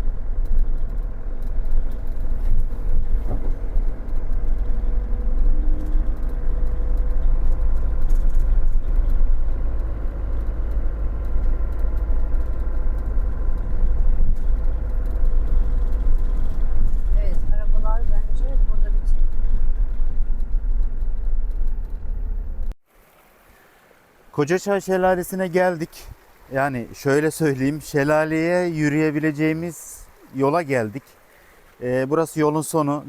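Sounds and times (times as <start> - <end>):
car on gravel road rumble: 0.0 - 33.0.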